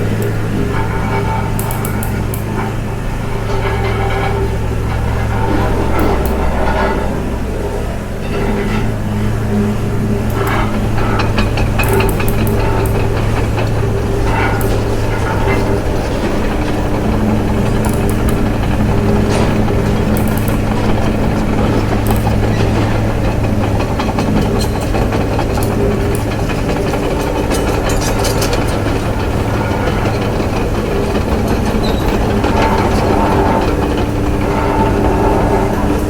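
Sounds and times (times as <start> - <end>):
motor humming: 0.0 - 36.0.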